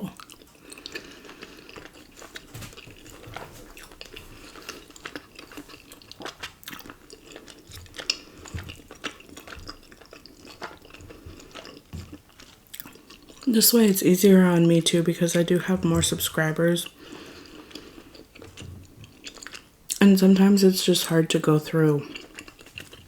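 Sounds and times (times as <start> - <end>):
person chewing with mouth clicks: 0.0 - 13.5, 16.8 - 20.0, 22.0 - 23.0.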